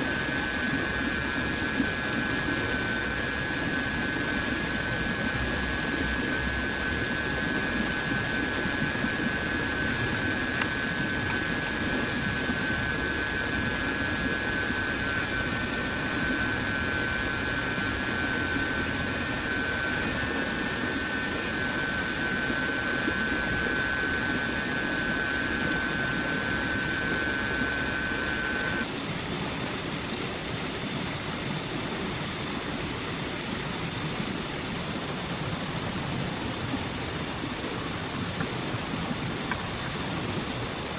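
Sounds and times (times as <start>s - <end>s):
low insect buzz: 0.0s - 29.0s
insects trilling: 0.0s - 40.9s.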